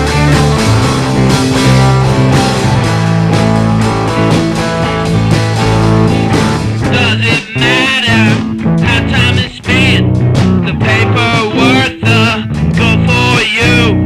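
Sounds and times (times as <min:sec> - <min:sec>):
rock music: 0:00.0 - 0:14.0
wavering high guitar line: 0:00.0 - 0:14.0.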